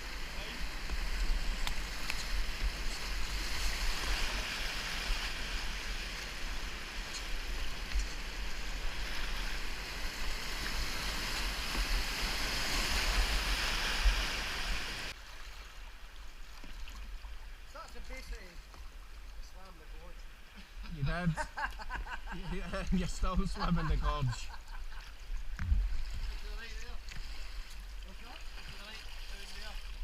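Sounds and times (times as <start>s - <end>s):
wind rumble on microphone: 25.4s - 26.4s.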